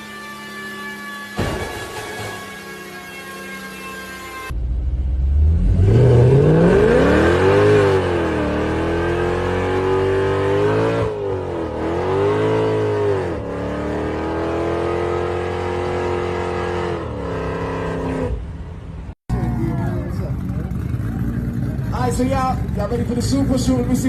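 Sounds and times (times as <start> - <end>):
car engine revving hard: 5.2 - 18.4.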